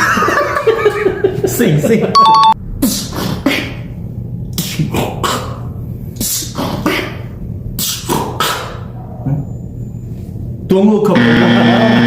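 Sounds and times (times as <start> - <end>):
vocal beatboxing: 2.8 - 9.4.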